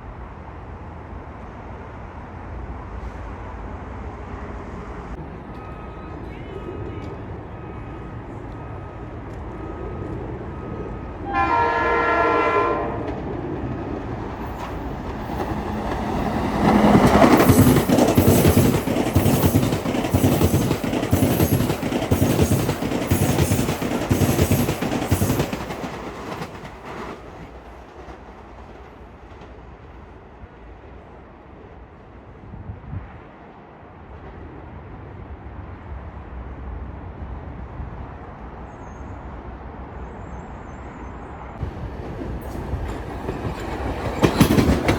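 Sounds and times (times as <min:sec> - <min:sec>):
train passing with rumble: 0:00.0 - 0:44.9
train horn blast: 0:11.2 - 0:13.2
wheels clattering over rail joints: 0:13.1 - 0:28.2, 0:41.9 - 0:44.9.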